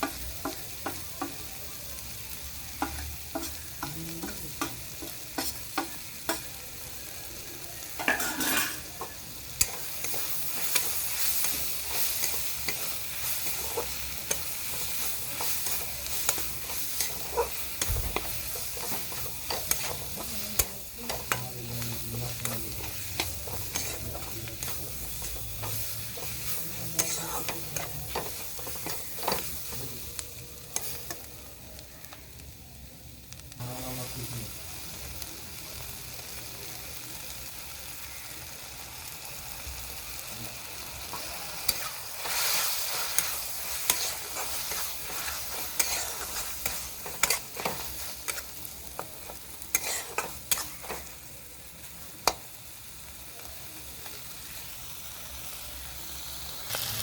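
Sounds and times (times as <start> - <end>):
vegetables sizzling in oil: 0.0 - 57.0
spatula scraping a pan: 2.8 - 6.4, 8.0 - 29.9, 41.0 - 51.2.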